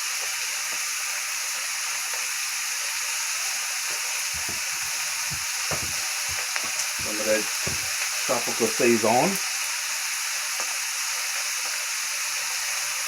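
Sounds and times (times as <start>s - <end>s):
cabbage sizzling in a wok: 0.0s - 13.0s
soft low knocks: 4.4s - 8.0s.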